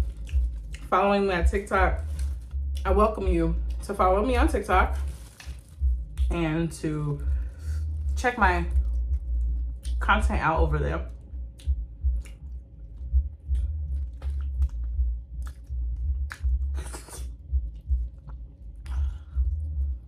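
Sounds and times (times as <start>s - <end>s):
chewing with mouth clicks: 0.0s - 0.9s, 11.2s - 20.0s
low bass rumble: 0.0s - 20.0s.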